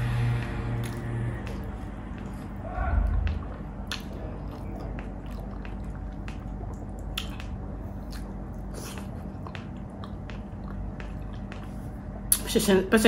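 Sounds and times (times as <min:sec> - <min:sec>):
steady low hum: 0:00.0 - 0:13.0
wet chewing and lip smacking: 0:00.7 - 0:12.5
mouth clicks: 0:03.0 - 0:08.3.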